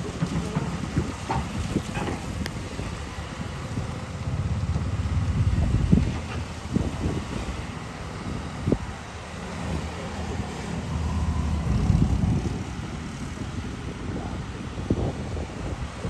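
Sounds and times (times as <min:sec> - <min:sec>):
excavator diesel engine rumbling: 0:00.0 - 0:15.5.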